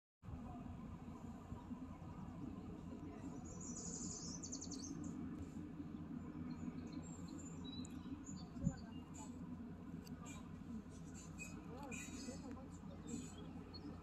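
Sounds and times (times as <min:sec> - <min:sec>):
steady low rumble: 0:00.2 - 0:14.0
small birds chirping: 0:02.8 - 0:14.0.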